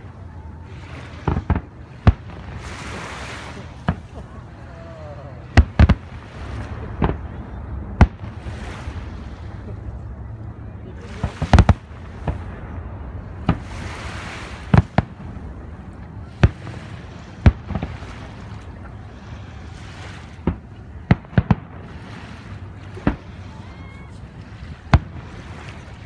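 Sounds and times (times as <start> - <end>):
fireworks bangs: 1.2 - 4.3, 5.5 - 8.6, 11.2 - 13.9, 14.6 - 15.5, 16.3 - 18.6, 20.3 - 23.4, 24.8 - 25.8.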